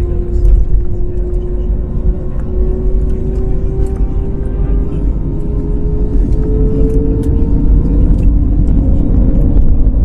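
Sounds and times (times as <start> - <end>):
heavy cabin rumble: 0.0 - 10.0
jet engines at takeoff thrust: 0.0 - 10.0.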